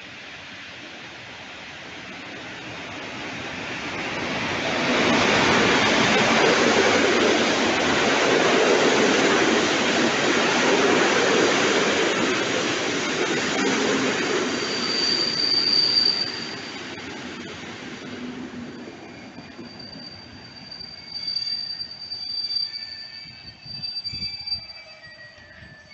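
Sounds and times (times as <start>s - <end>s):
train wheels rushing on rail: 0.0s - 25.9s
high-pitched metallic squeal: 14.1s - 17.1s, 18.8s - 25.9s.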